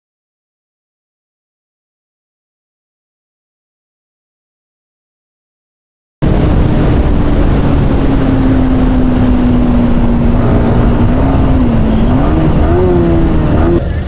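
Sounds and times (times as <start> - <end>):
motorcycle engine: 6.2 - 14.0
wind rumble on microphone: 6.2 - 14.0.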